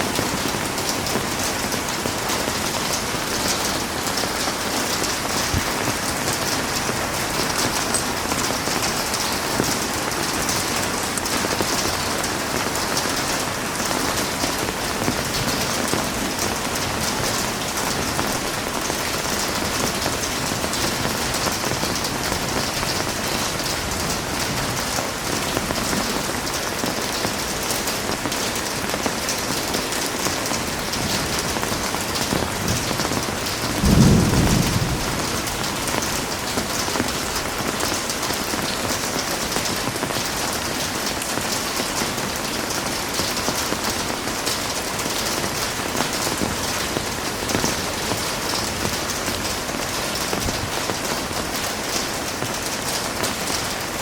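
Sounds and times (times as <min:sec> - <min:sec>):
heavy rain: 0:00.0 - 0:54.0
low thunder rumble: 0:32.4 - 0:36.8.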